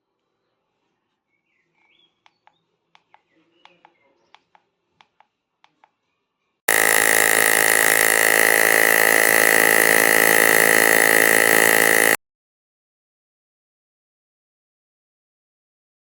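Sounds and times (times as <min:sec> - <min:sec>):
loud mechanical buzz: 0:06.7 - 0:12.2.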